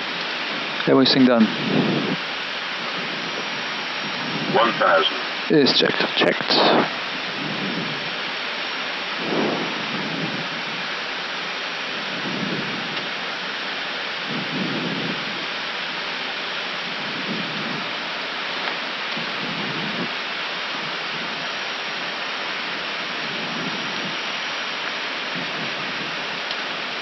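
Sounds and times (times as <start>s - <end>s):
airflow and engines rushing: 0.0s - 27.0s.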